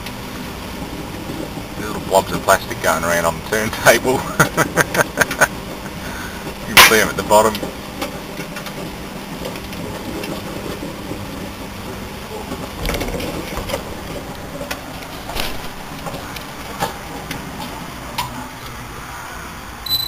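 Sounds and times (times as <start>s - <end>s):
microwave oven humming: 7.6s - 20.0s.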